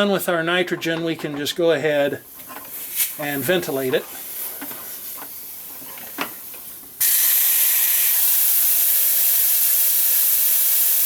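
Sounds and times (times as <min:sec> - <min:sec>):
gas venting hiss: 0:02.3 - 0:11.0.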